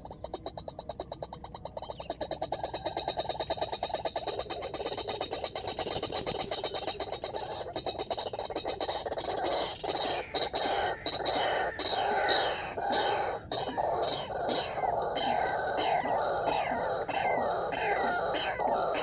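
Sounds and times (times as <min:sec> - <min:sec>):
waterhen croaking calls: 0:06.5 - 0:19.0.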